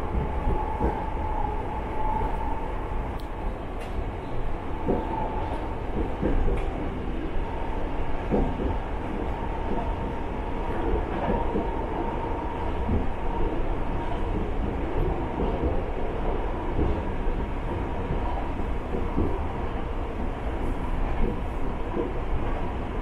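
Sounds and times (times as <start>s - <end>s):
railcar engine rumble: 0.0s - 23.0s.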